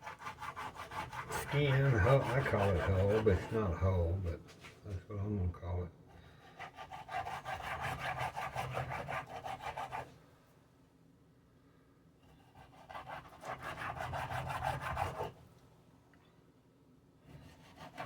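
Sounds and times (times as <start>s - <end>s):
knife sawing through fish: 0.0s - 4.1s, 6.4s - 10.1s, 12.4s - 15.4s, 17.3s - 18.0s.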